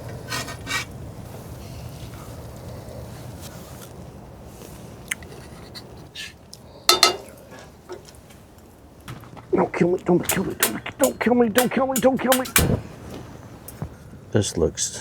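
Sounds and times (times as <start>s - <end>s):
low background noise: 0.0s - 15.0s
metal utensils scraping pans: 0.1s - 0.9s, 6.9s - 8.1s, 10.2s - 13.8s
sharp clatters: 10.2s - 13.0s.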